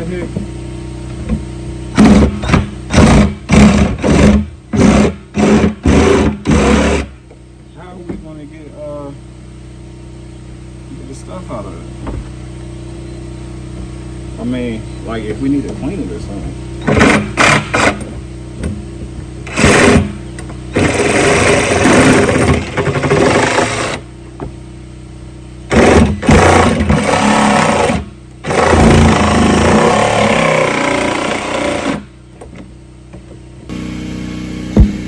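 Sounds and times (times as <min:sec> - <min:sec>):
handheld power tool running: 0:01.3 - 0:07.3, 0:16.8 - 0:18.8, 0:19.4 - 0:24.1, 0:25.7 - 0:32.2, 0:33.7 - 0:35.0.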